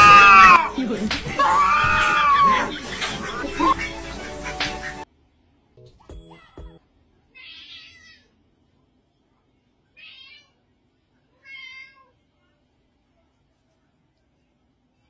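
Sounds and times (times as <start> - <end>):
cat meowing: 0.0 - 0.7, 1.4 - 2.7, 7.4 - 8.3, 10.0 - 10.6, 11.4 - 12.1.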